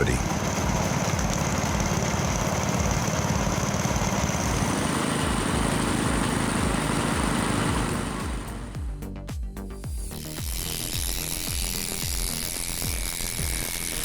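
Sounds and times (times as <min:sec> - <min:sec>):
machine engine running: 0:00.0 - 0:09.0
high whine: 0:00.0 - 0:14.0.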